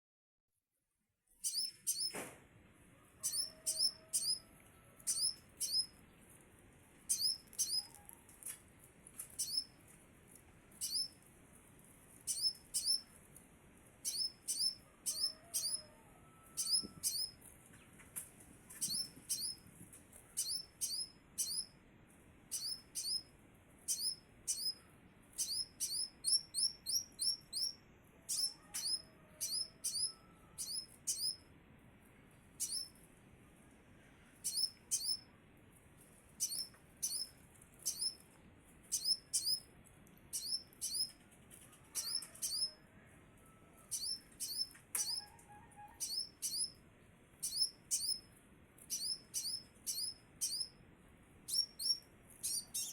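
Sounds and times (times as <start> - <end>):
bird calling in whistled notes: 1.4 - 2.2, 5.1 - 6.0, 16.6 - 17.4, 20.4 - 21.7, 22.5 - 23.3, 25.4 - 31.4, 40.3 - 41.1, 43.9 - 46.8, 47.4 - 48.2, 48.9 - 50.8, 51.5 - 52.9.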